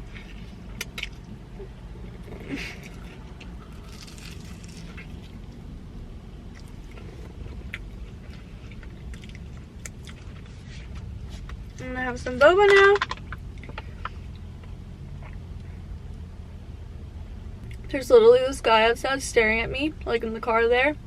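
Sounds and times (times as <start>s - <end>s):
chewing and crunching food: 0.0s - 11.8s
low steady hum: 0.0s - 21.0s.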